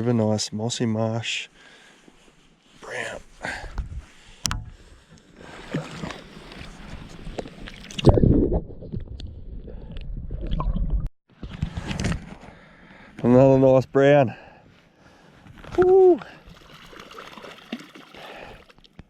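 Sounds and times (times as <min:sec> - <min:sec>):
water sloshing and splashing: 0:04.5 - 0:12.1, 0:16.4 - 0:19.0.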